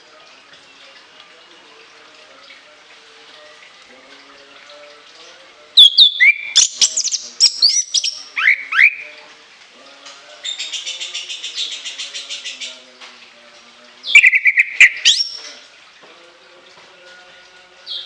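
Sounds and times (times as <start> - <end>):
thrush singing shrill whistled notes: 5.8 - 9.1, 14.1 - 15.6.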